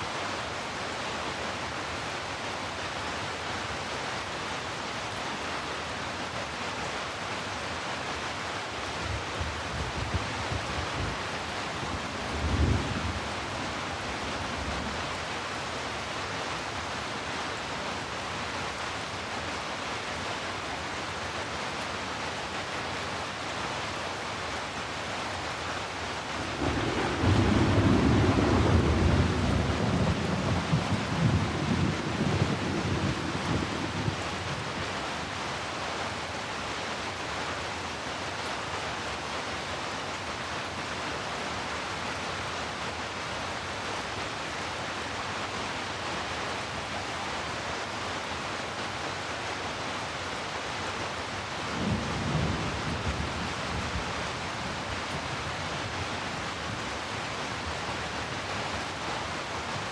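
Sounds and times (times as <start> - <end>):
heavy rain falling: 0.0 - 59.9
rolling thunder rumbles: 26.4 - 34.3.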